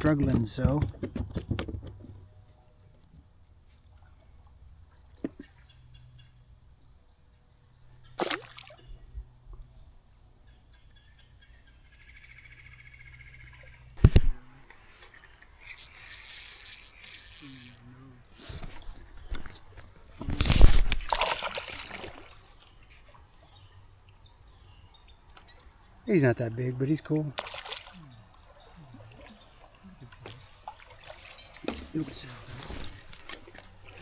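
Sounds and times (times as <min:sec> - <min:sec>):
sharp knocks on a kayak: 0:00.0 - 0:02.4
crickets droning: 0:00.0 - 0:34.0
splashing water: 0:08.1 - 0:09.0, 0:20.2 - 0:24.3, 0:27.2 - 0:34.0.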